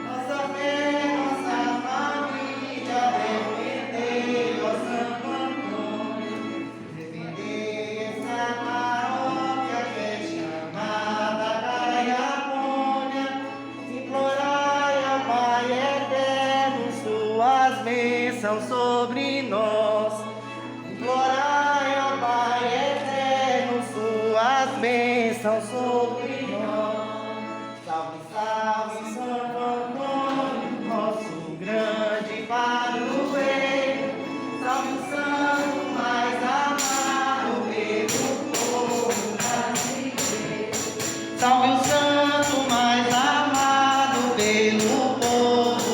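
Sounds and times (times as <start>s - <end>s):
group singing devotional song: 0.0s - 18.3s, 21.0s - 45.9s
percussion beat: 36.8s - 37.4s, 38.0s - 45.9s.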